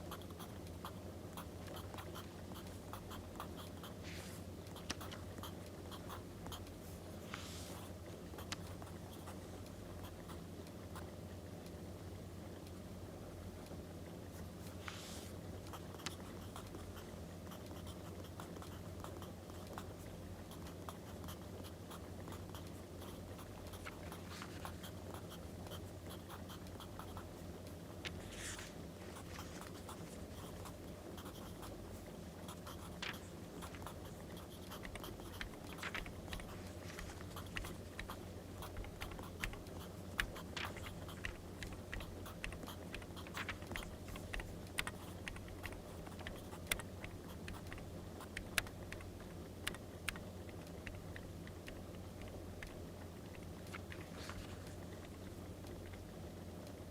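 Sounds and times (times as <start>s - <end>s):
low steady hum: 0.0s - 56.9s
paper rustling: 23.8s - 24.8s, 28.1s - 30.5s, 32.8s - 33.9s, 34.8s - 46.8s, 53.7s - 54.8s.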